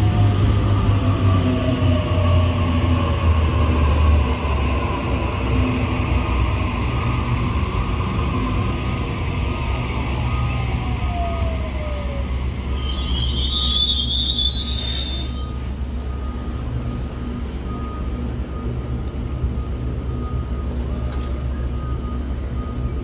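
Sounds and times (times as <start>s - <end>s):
train wheels rumbling on rails: 0.0s - 23.0s
train whine: 0.0s - 23.0s
high-pitched squeal: 12.6s - 15.6s.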